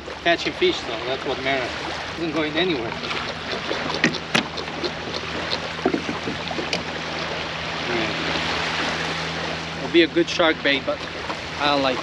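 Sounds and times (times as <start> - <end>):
water washing: 0.0 - 12.0
wind: 0.0 - 12.0
sharp clicks and knocks: 3.0 - 4.9, 5.8 - 6.9.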